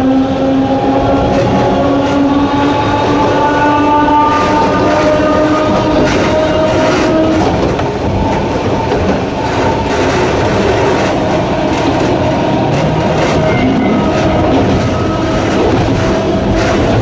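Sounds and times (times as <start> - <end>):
electric train motor whine: 0.0 - 17.0
train wheels rumbling: 0.0 - 17.0
wheels clicking over rail joints: 1.1 - 17.0.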